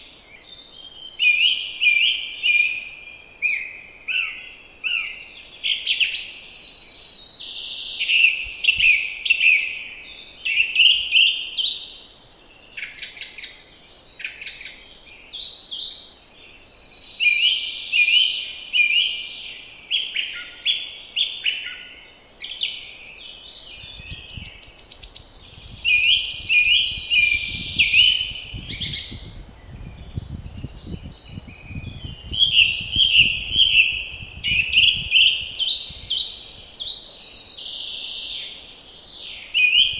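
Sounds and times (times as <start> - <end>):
songbirds singing: 0.0 - 39.9
wind rumble: 26.3 - 36.5.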